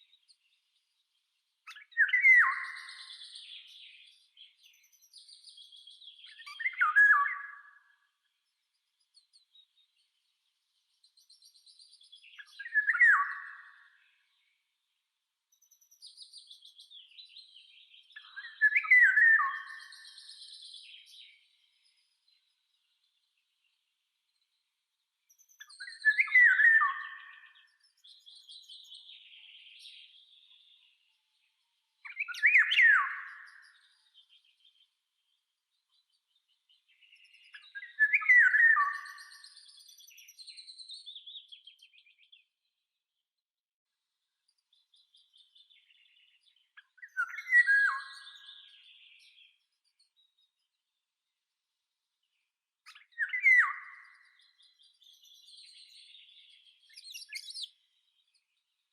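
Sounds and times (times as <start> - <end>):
high twittering bird chirps: 1.6 - 8.0, 11.0 - 14.0, 15.6 - 23.0, 25.3 - 31.1, 32.0 - 42.5, 44.7 - 50.7, 52.8 - 58.8
high bird twittering: 52.9 - 57.8.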